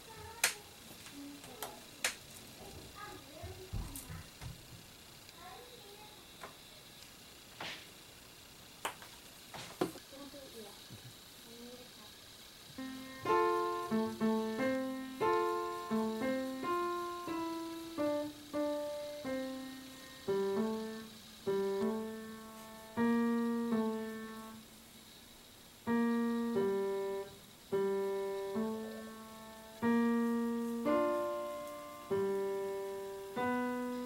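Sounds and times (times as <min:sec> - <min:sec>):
gentle piano melody: 0:12.8 - 0:24.6, 0:25.9 - 0:34.0.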